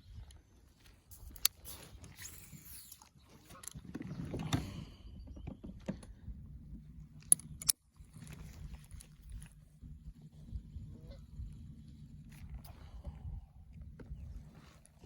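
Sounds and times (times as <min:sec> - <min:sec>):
steady low hum: 0:06.0 - 0:15.0.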